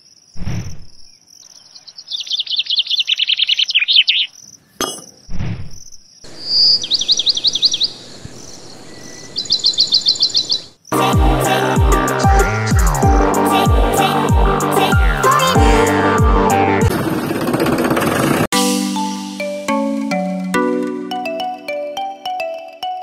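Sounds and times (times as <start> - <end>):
crickets chirping: 0.0 - 11.0
birds trilling: 6.3 - 11.1.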